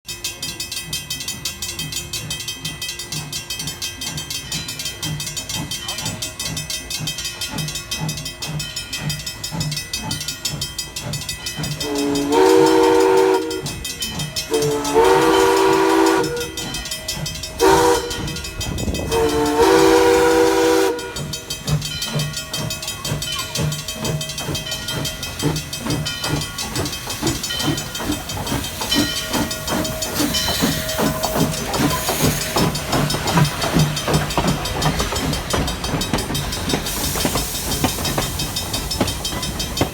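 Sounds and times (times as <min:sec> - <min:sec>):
steam locomotive chuffing: 0:00.1 - 0:39.9
steam whistle blasts: 0:11.8 - 0:13.8, 0:14.5 - 0:16.7, 0:17.6 - 0:18.4, 0:19.1 - 0:21.3.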